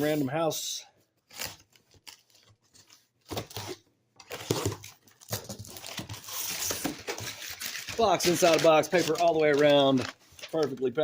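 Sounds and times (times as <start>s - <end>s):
cardboard rustling: 1.3s - 11.0s
packing tape tearing: 3.3s - 10.8s.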